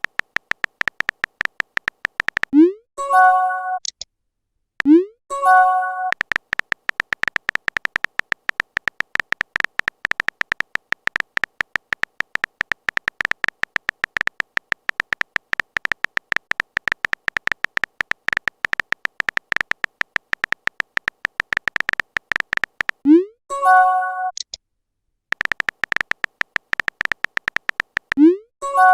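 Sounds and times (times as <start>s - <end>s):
phone keyboard typing clicks: 0.0s - 2.6s, 6.0s - 23.1s, 25.3s - 28.3s.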